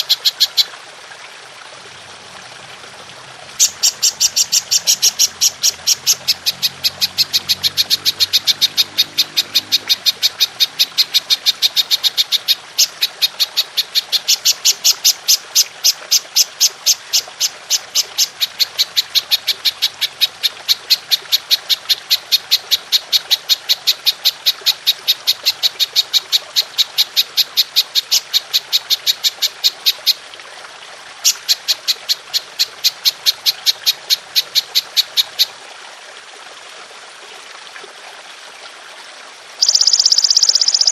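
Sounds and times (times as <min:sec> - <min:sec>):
trickling water: 0:00.0 - 0:40.9
katydid chirping pulses: 0:03.6 - 0:12.5, 0:39.6 - 0:40.9.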